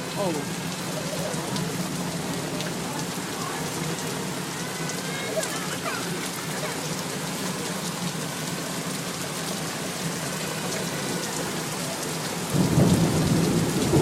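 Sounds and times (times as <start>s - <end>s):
rain falling: 0.0s - 14.0s
thunder rumbling: 12.5s - 14.0s.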